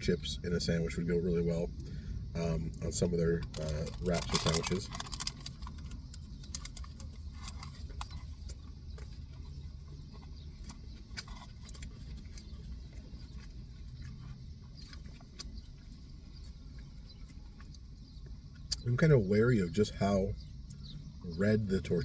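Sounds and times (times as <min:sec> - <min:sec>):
low steady hum: 0:00.0 - 0:22.0
crunchy food chewing: 0:01.0 - 0:22.0
mouth clicks: 0:18.6 - 0:19.0.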